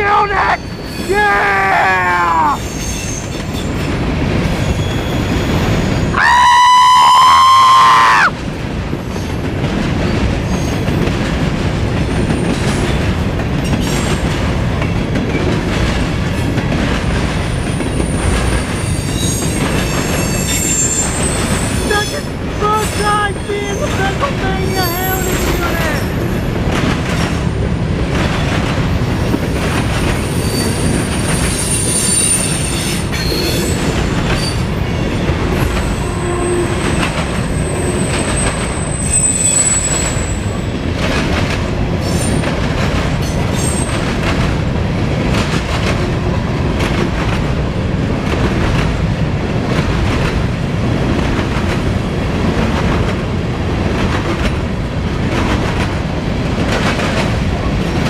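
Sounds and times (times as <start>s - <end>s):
freight train rumbling past: 0.0s - 58.0s
high wheel squeals: 18.6s - 23.9s, 35.8s - 40.5s.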